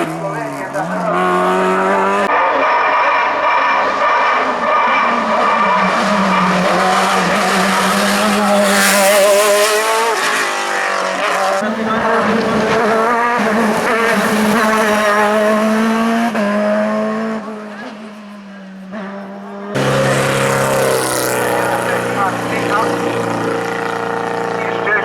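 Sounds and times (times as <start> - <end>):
race car engine running hard: 0.0 - 25.0.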